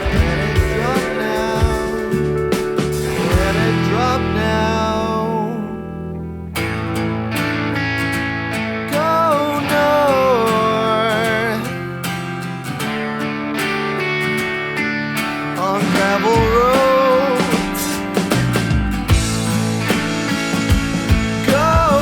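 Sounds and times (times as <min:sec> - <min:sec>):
drums: 0:00.0 - 0:04.1, 0:15.2 - 0:22.0
sliding melody line: 0:00.0 - 0:05.7
strummed guitar: 0:00.0 - 0:22.0.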